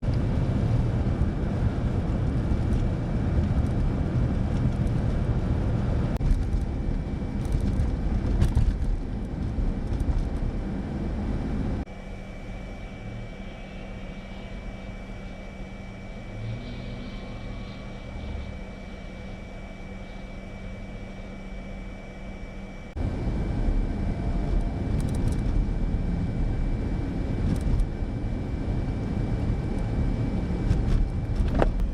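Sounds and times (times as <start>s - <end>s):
vehicle rumbling roar: 0.0s - 11.9s, 12.8s - 20.8s, 22.9s - 31.9s
wind noise: 0.0s - 11.9s, 23.0s - 31.9s
steady hum: 0.0s - 31.9s
faint high whine: 0.1s - 31.9s.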